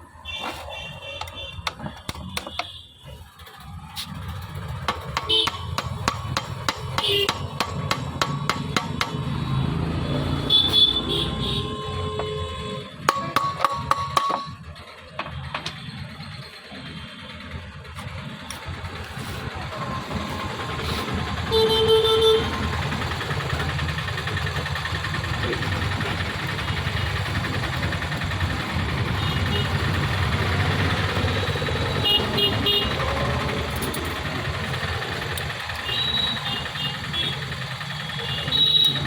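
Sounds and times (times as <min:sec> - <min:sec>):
vehicle engine running: 0:03.4 - 0:39.0
car horn honk: 0:05.3 - 0:05.8, 0:07.0 - 0:07.5, 0:09.0 - 0:13.1, 0:21.5 - 0:22.7, 0:31.9 - 0:33.2, 0:38.1 - 0:39.0.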